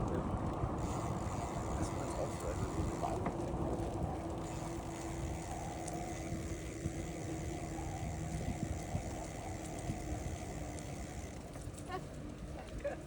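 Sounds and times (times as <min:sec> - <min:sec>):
bicycle tyres rumbling on road: 0:00.0 - 0:13.0
small clicks and rattles: 0:00.0 - 0:13.0
faint steady hum: 0:00.7 - 0:13.0.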